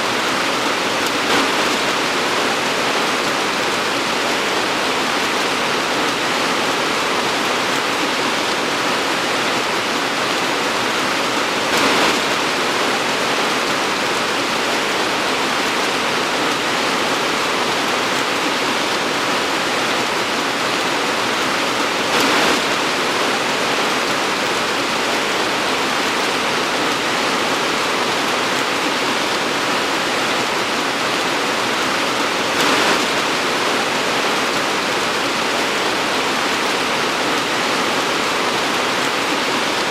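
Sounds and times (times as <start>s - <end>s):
torrential rain pouring: 0.0s - 39.9s.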